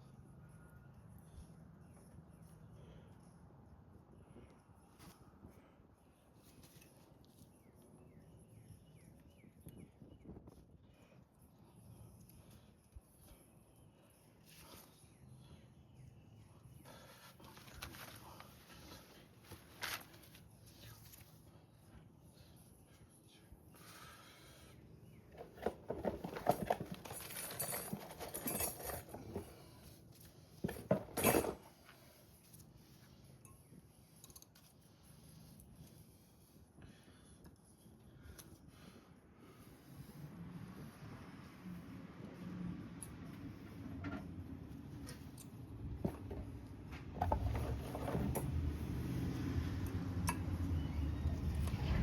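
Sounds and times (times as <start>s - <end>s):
metal parts and tools rattling: 25.4s - 29.9s, 30.6s - 31.8s.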